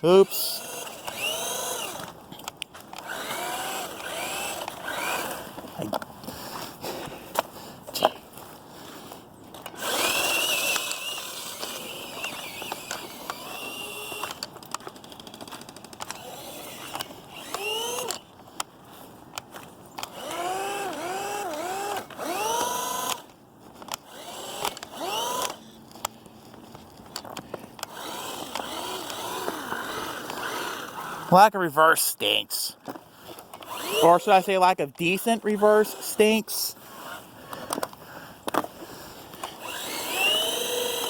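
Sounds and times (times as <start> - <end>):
wheels spinning in snow: 0.1 - 5.8, 8.3 - 31.4, 33.2 - 41.0
electric motor whining: 0.3 - 2.2, 2.9 - 5.6, 9.7 - 14.5, 16.0 - 18.3, 20.0 - 23.3, 24.0 - 25.7, 27.8 - 31.3, 33.6 - 34.6, 39.4 - 41.0.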